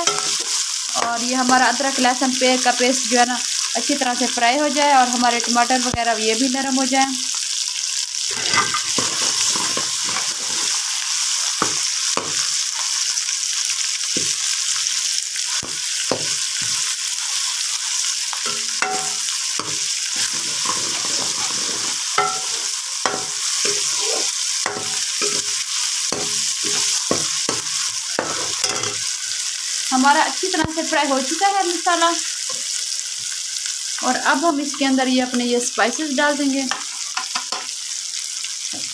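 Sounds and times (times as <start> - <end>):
vegetables sizzling in hot oil: 0.0 - 38.9
metal ladle scraping pan: 8.3 - 10.8, 18.4 - 29.1.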